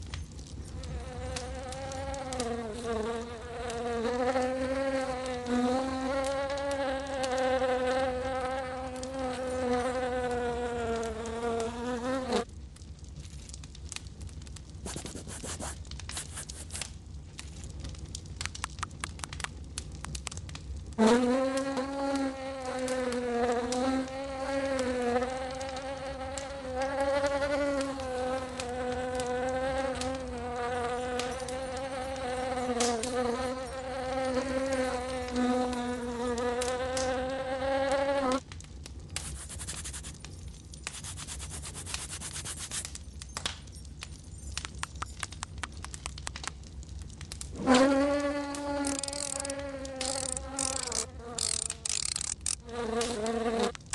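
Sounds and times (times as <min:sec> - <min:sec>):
fly buzzing: 0:00.9 - 0:12.5, 0:14.8 - 0:16.8, 0:21.0 - 0:38.4, 0:39.2 - 0:40.2, 0:40.9 - 0:42.9, 0:47.6 - 0:53.8
faint scratchy clicks: 0:48.5 - 0:53.9.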